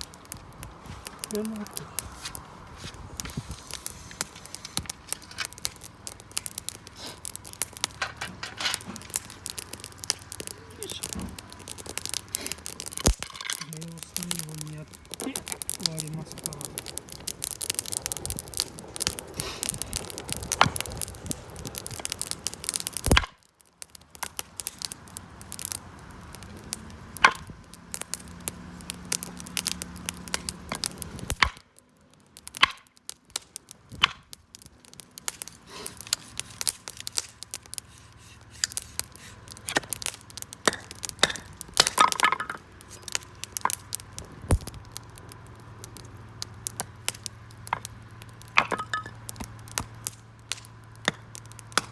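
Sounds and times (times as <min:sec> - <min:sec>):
campfire crackling and popping: 0:00.0 - 0:51.9.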